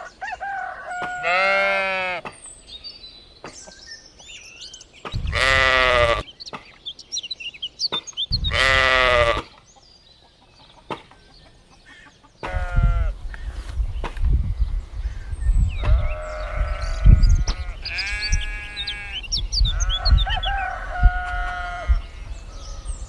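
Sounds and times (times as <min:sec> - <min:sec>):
small birds chirping faintly: 0:00.0 - 0:23.0
sheep bleating: 0:01.2 - 0:02.2, 0:05.2 - 0:06.2, 0:08.5 - 0:09.4, 0:12.5 - 0:13.2, 0:15.9 - 0:19.2.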